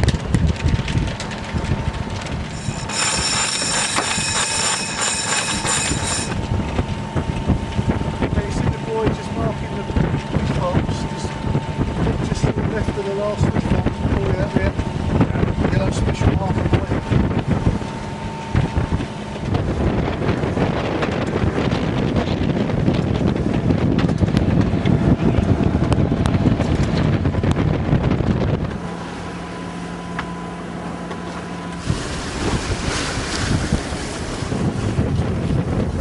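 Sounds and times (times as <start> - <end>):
water rushing along hull: 0.0 - 36.0
wind buffeting microphone: 0.0 - 36.0.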